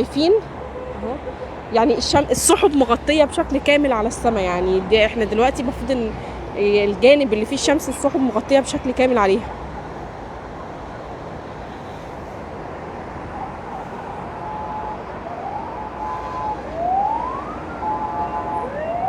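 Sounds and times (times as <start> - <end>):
emergency vehicle siren: 0.0 - 2.5, 9.2 - 19.0
street traffic noise: 0.0 - 19.0.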